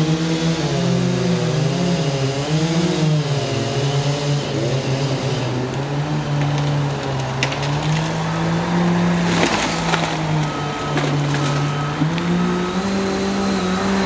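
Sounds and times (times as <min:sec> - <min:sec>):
machinery engine running: 0:05.1 - 0:14.0
crackling: 0:09.1 - 0:12.3.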